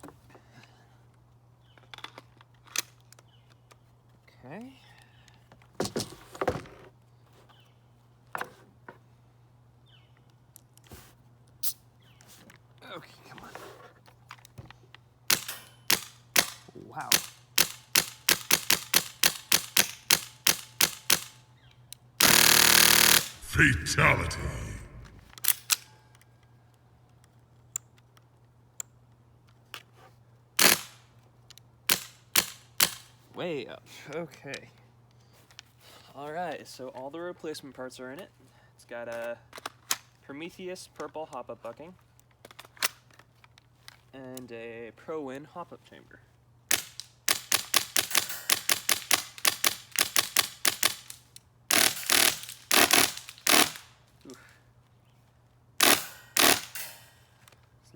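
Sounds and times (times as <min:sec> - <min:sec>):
airsoft rifle shots: 0:22.2 - 0:25.2, 0:51.7 - 0:53.8, 0:55.8 - 0:57.0.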